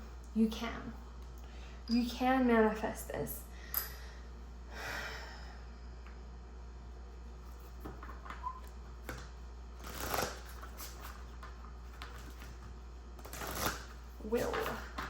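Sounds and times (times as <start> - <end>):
cards shuffling: 9.1 - 12.6, 13.2 - 15.0.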